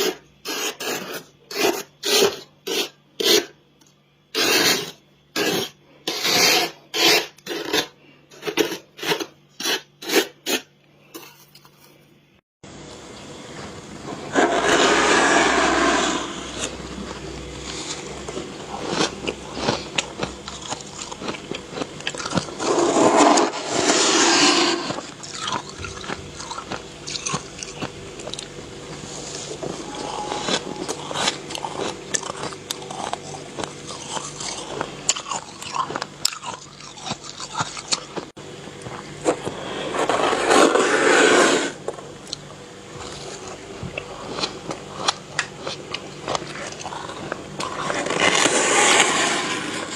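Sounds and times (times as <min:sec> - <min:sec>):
frost being scraped: 0:00.0 - 0:03.6, 0:04.3 - 0:11.4, 0:14.0 - 0:21.4, 0:22.2 - 0:26.7, 0:28.9 - 0:34.8, 0:39.4 - 0:41.8, 0:46.3 - 0:49.9.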